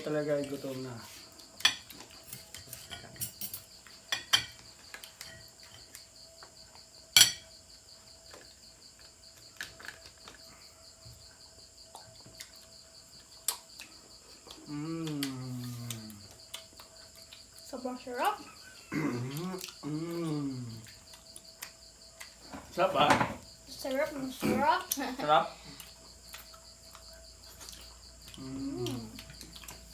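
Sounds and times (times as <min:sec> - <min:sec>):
crickets chirping: 0:00.0 - 0:29.9
plates and utensils clinking: 0:01.6 - 0:04.6, 0:07.2 - 0:07.5.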